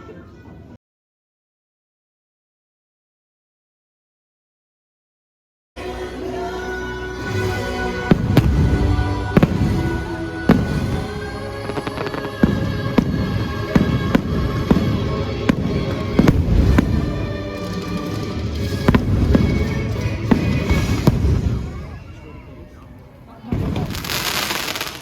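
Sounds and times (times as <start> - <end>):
music playing: 5.8 - 22.0
fireworks bangs and pops: 8.1 - 22.0, 23.5 - 25.0.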